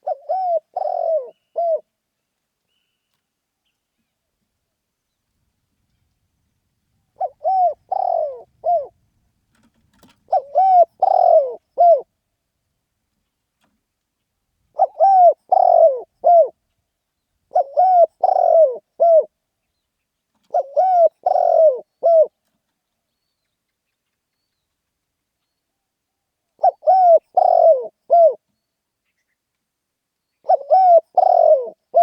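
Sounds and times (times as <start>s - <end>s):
dove cooing: 0.0s - 1.9s, 7.2s - 9.0s, 10.3s - 12.1s, 14.7s - 16.6s, 17.5s - 19.3s, 20.4s - 22.4s, 26.6s - 28.4s, 30.4s - 32.0s.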